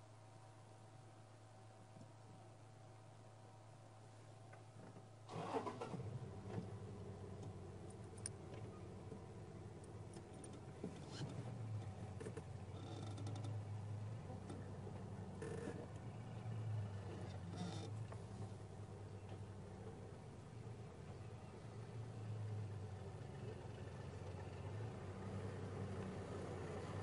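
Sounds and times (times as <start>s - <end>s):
vehicle engine starting and idling: 5.2s - 19.9s.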